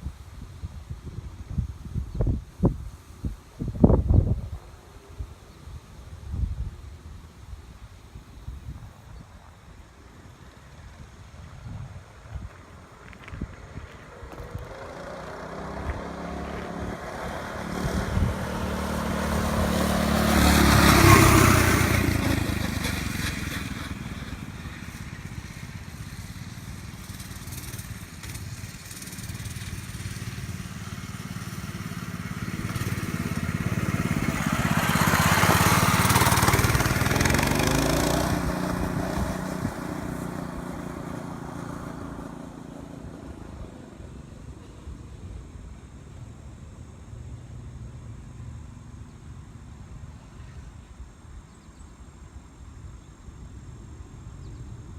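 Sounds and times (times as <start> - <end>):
mini bike engines passing: 10.7 - 45.2.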